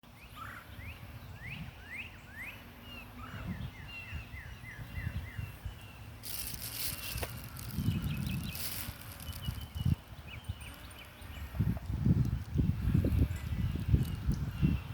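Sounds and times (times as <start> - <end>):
songbirds singing: 0.1 - 14.9.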